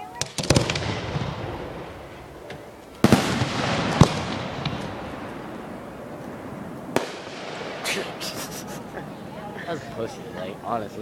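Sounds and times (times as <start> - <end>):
firework shells bursting: 0.2 - 8.9.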